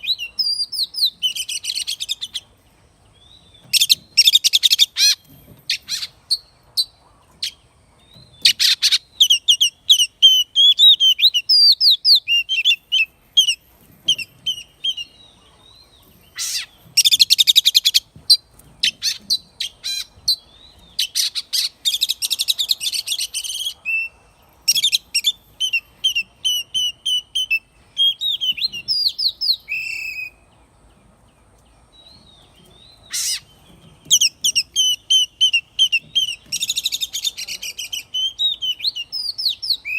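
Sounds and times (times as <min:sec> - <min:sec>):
bird whistling song: 0:00.0 - 0:02.4, 0:03.2 - 0:18.1, 0:18.8 - 0:30.5, 0:32.1 - 0:39.9
harsh rapid rattling bird calls: 0:03.6 - 0:15.3, 0:16.0 - 0:27.5, 0:32.2 - 0:39.9.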